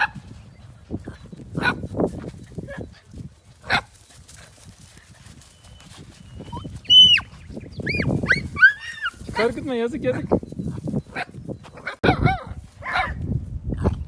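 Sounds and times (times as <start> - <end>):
puppies yipping and barking: 5.3 - 9.5, 10.9 - 13.2.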